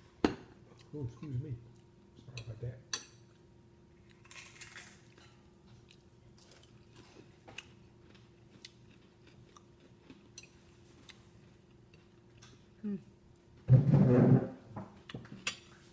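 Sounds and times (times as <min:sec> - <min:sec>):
faint steady hum: 0:00.0 - 0:15.9
person chewing: 0:04.0 - 0:12.6.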